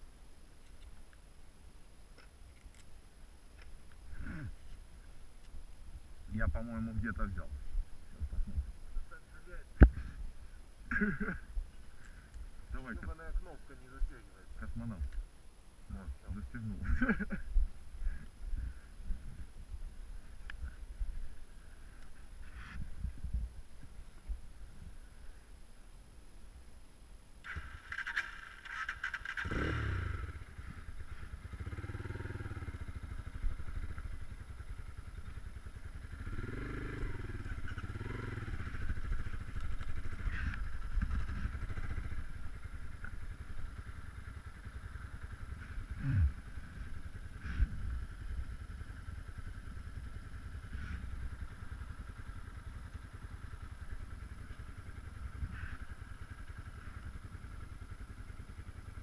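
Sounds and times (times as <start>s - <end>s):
motorcycle engine revving: 27.4s - 59.0s.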